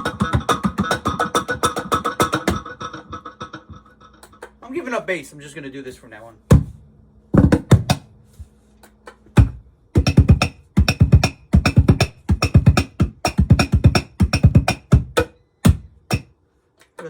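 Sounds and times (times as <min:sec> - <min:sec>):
effect-processed drum strokes: 0:09.4 - 0:16.3.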